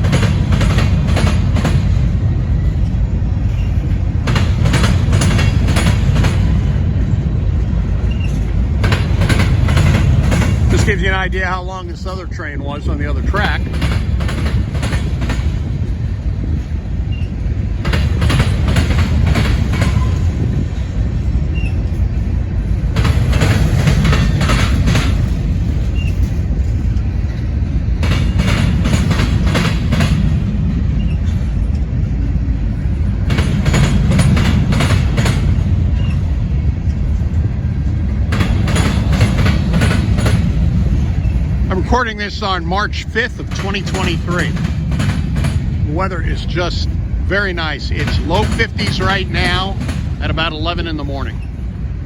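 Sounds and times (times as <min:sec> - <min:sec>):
freight train rumbling past: 0:00.0 - 0:52.0
wheels clicking over rail joints: 0:00.0 - 0:52.0.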